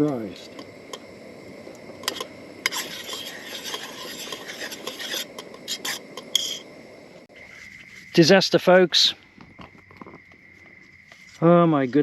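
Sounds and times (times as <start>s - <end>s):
spoon stirring and scraping pot: 2.0s - 6.7s.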